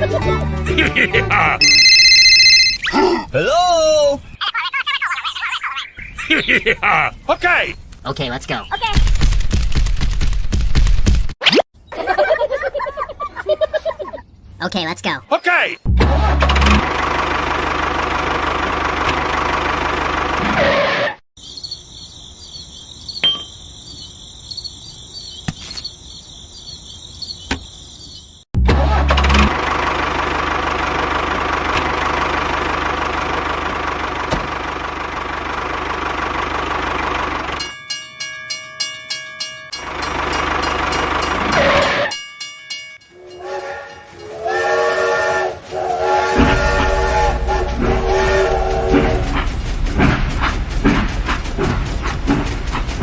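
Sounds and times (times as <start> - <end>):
engine-like running noise: 16.0 - 20.9, 28.7 - 37.7, 45.8 - 53.0
horn-like tones: 43.1 - 49.5.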